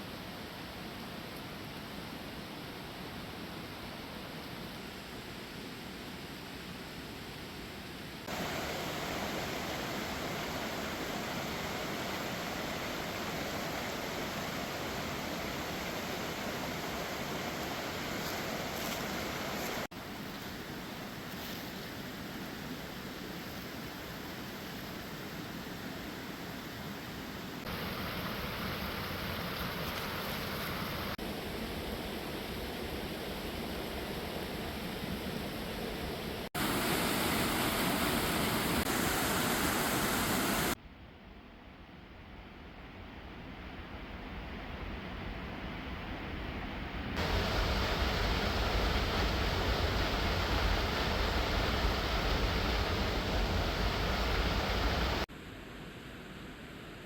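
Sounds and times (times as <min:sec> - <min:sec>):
waterfall rushing: 0:08.3 - 0:19.9, 0:27.7 - 0:31.2, 0:36.6 - 0:40.8, 0:47.2 - 0:55.3.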